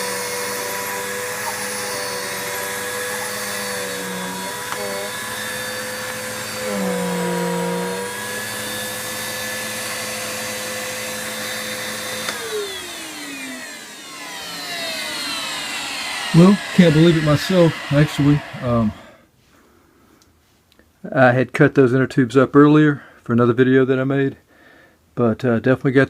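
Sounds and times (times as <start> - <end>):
vacuum cleaner motor whine: 0.0 - 19.2.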